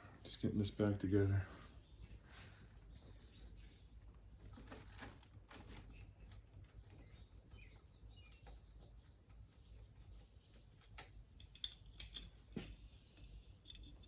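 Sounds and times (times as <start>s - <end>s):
faint bird chirps: 5.7s - 11.2s.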